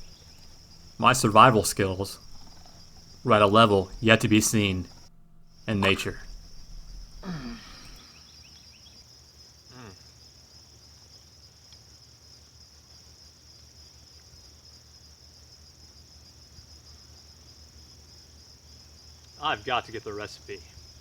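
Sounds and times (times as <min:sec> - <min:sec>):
faint falling sound: 0:00.0 - 0:08.1
cricket chorus chirring: 0:00.0 - 0:21.0.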